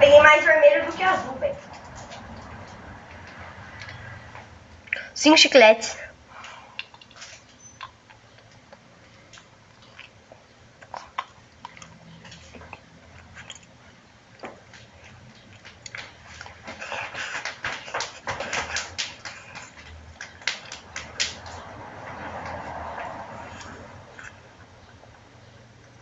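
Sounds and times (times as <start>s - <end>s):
wet chewing mouth sounds: 6.4s - 20.9s, 22.4s - 26.0s
huffing breaths: 16.2s - 20.0s.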